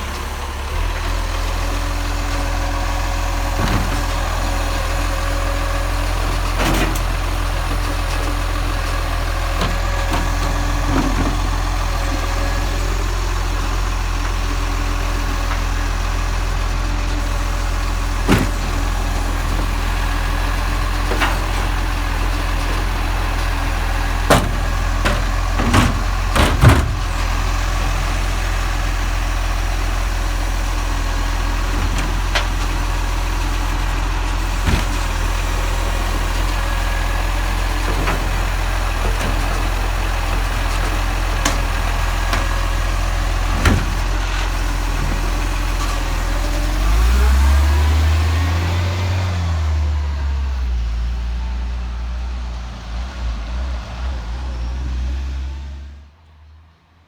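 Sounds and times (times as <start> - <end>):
garbage truck engine droning: 0.0 - 56.8
knocks and clunks: 3.4 - 5.4, 16.7 - 28.4, 31.4 - 46.0.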